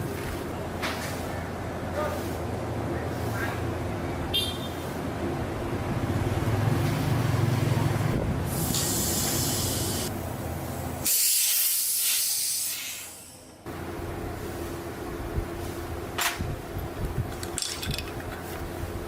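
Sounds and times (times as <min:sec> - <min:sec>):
hissing spray bursts: 0:08.4 - 0:10.1, 0:11.0 - 0:13.5.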